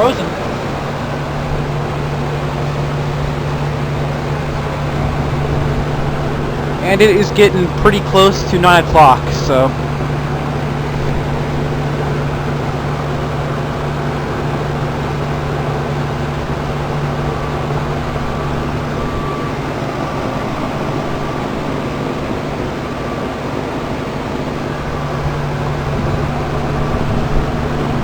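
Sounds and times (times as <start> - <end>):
compressor hum: 0.0 - 28.0
fans whooshing: 5.2 - 9.8.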